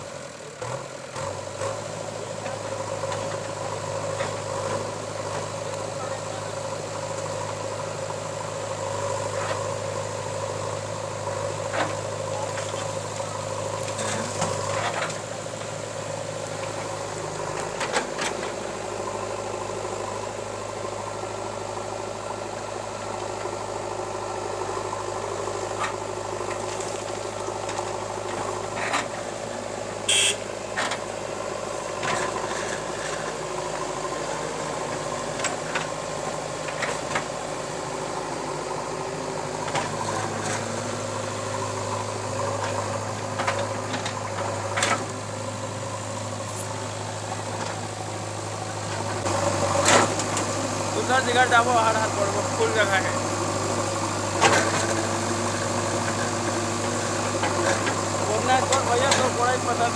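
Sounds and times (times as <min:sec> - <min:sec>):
heavy machinery diesel idling: 0:00.0 - 0:59.9.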